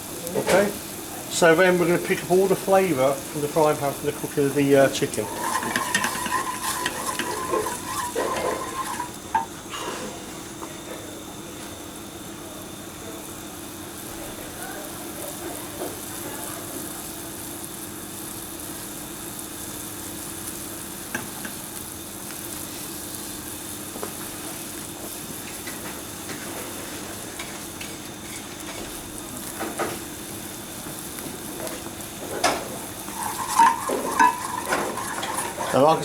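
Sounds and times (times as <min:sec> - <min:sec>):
pan sizzling: 0:00.0 - 0:09.7, 0:13.3 - 0:36.0
utensil knocking against pan: 0:05.2 - 0:09.5, 0:32.4 - 0:35.8.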